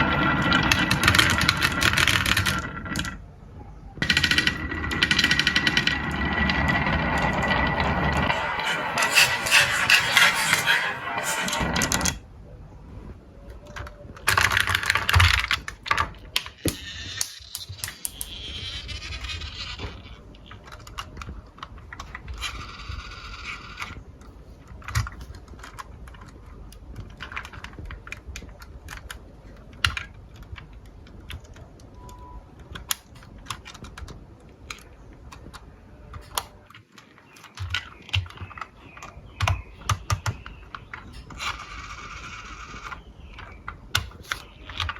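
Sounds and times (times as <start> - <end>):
marbles clattering down wooden run: 0.0 - 3.2, 4.0 - 11.6.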